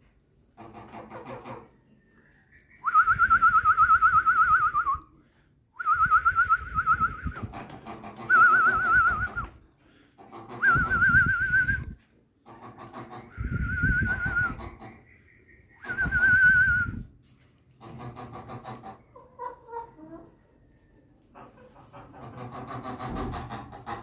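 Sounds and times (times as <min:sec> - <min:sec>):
bird whistling: 0:02.5 - 0:05.1, 0:08.3 - 0:09.5, 0:13.3 - 0:17.1.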